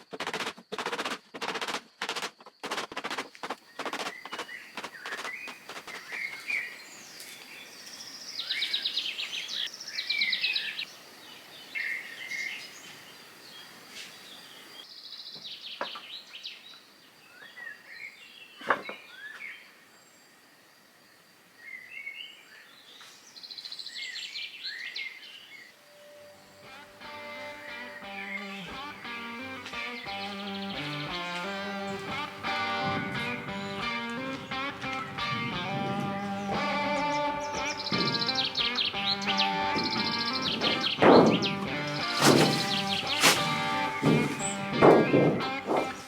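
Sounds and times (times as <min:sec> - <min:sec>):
small birds chirping: 0:03.2 - 0:20.4, 0:21.1 - 0:46.0
sharp knock: 0:39.8 - 0:45.9.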